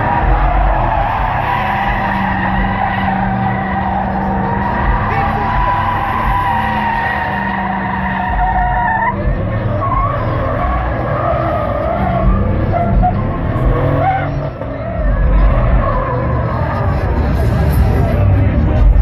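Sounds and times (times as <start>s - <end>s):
tires squealing: 0.0s - 19.0s
truck engine running: 0.0s - 19.0s.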